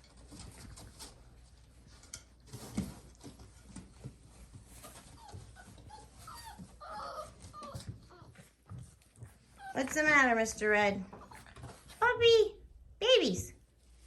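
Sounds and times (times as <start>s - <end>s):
puppies scuffling: 0.0s - 12.4s
puppy whimpering: 4.7s - 8.6s, 9.2s - 10.2s.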